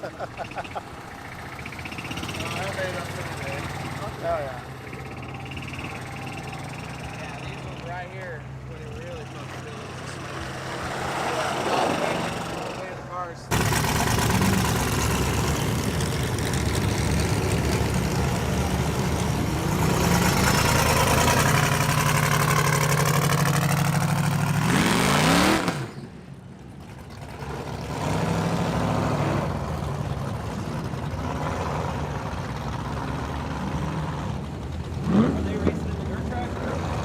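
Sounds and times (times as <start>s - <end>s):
car engine revving hard: 13.5s - 26.0s, 35.0s - 37.0s.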